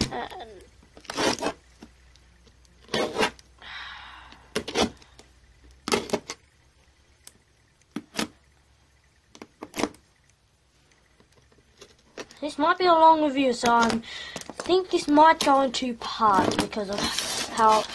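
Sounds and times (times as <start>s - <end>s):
rustling scrape: 1.0s - 1.6s, 16.2s - 17.9s.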